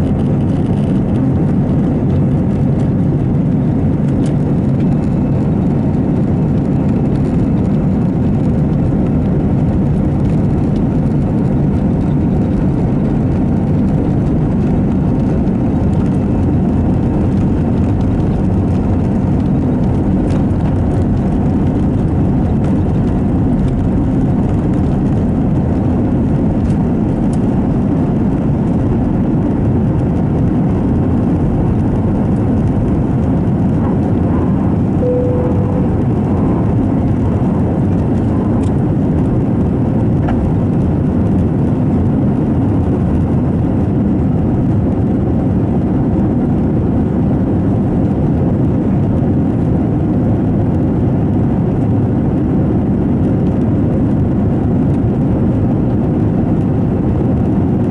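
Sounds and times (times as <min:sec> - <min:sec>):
airplane cabin engine noise: 0:00.0 - 0:57.9
short steady tone: 0:35.0 - 0:36.7.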